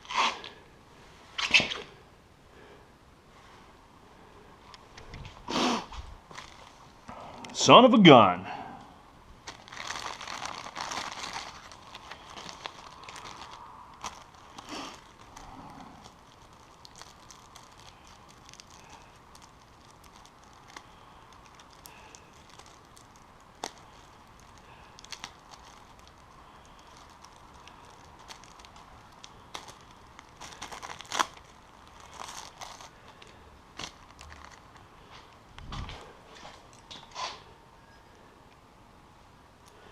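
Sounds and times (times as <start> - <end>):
faint steady hum: 0.0 - 39.9
rustling: 4.6 - 7.1, 9.4 - 37.6.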